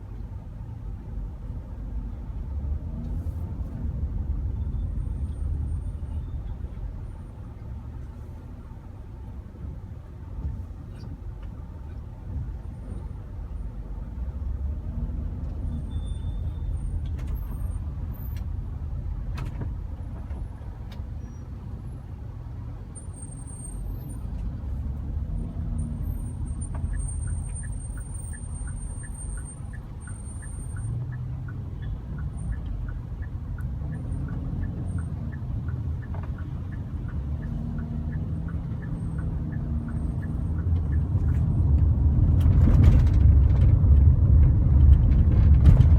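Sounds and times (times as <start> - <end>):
car traffic rumble: 0.0 - 45.9
light regular ticking: 26.3 - 42.1.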